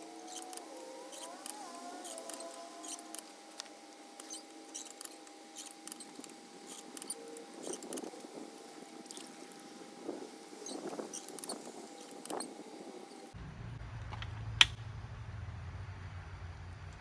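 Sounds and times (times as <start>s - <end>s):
hand tools clicking: 0.0s - 9.7s, 10.6s - 12.5s
faint steady hum: 0.0s - 17.0s.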